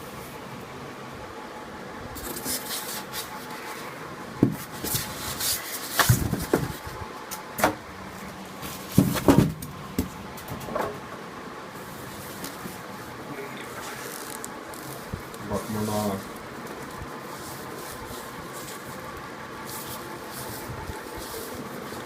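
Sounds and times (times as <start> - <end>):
packaging knocks and thumps: 8.8 - 10.2.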